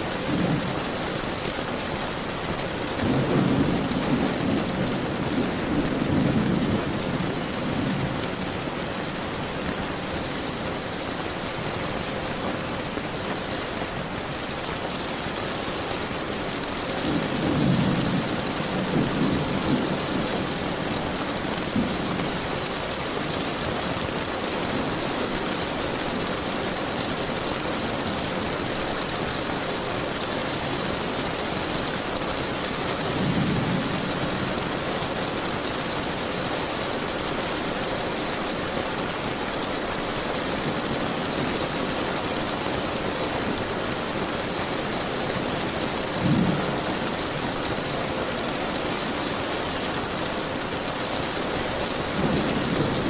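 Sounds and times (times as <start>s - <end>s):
heavy rain: 0.0s - 53.0s
thunder rumbles: 2.9s - 9.9s, 16.6s - 23.4s, 45.3s - 49.1s.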